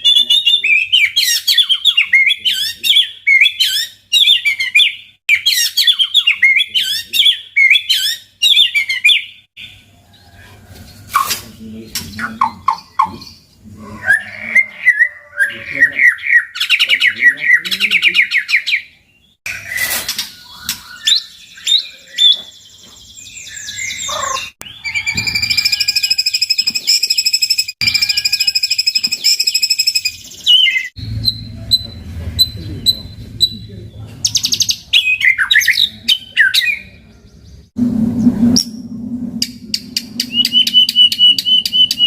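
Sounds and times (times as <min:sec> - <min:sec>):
songbird whistles and trills: 0:00.0 - 0:09.8, 0:18.3 - 0:32.0, 0:39.7 - 0:42.0.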